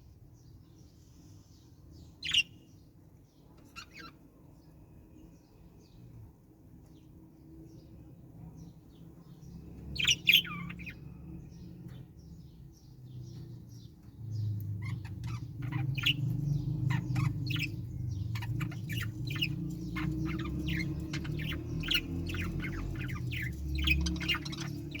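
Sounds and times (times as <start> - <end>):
parrots chattering: 3.7 - 4.2, 9.9 - 11.0, 14.7 - 25.0.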